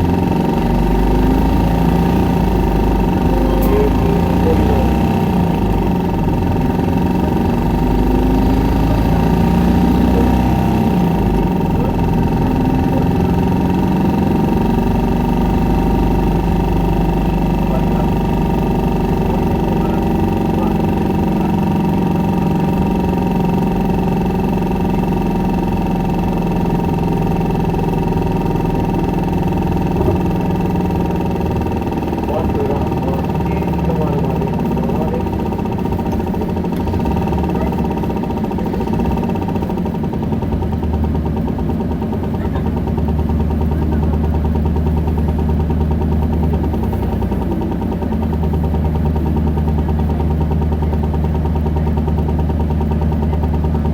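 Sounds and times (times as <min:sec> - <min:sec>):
high whine: 0:00.0 - 0:22.4
bus diesel engine drone: 0:00.0 - 0:53.9.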